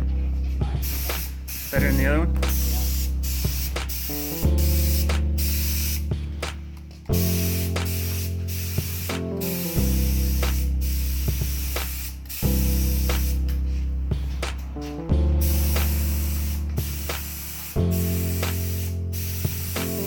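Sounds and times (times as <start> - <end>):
background music with low chords: 0.0 - 20.0
paint spray gun hissing: 0.8 - 6.1, 7.2 - 13.5, 15.4 - 20.0.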